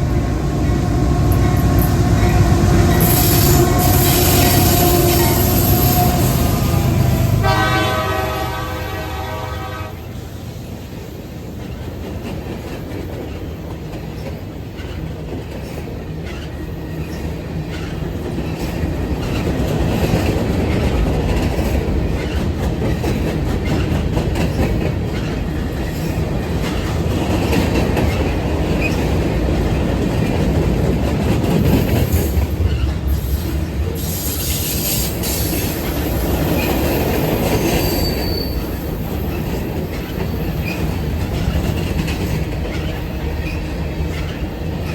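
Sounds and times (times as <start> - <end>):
rail joint clicks: 0.0 - 7.4, 10.2 - 44.9
train wheels rumbling on rail: 0.0 - 44.9
high-pitched wheel squeal: 3.0 - 6.6, 37.6 - 38.8.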